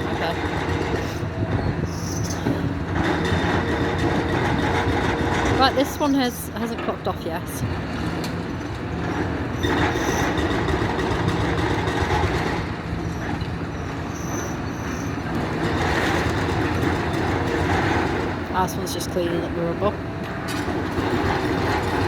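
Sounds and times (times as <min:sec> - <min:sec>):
excavator diesel engine: 0:00.0 - 0:22.0
high metallic squeals: 0:01.5 - 0:02.7, 0:13.0 - 0:15.3.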